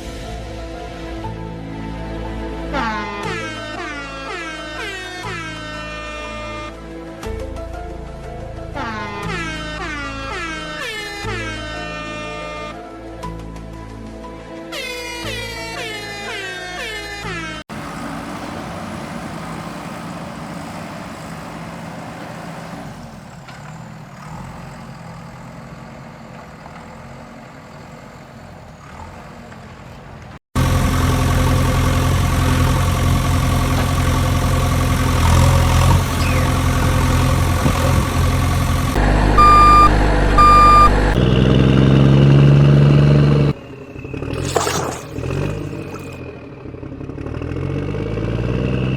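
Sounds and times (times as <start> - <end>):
short horn honks: 39.4 - 41.1.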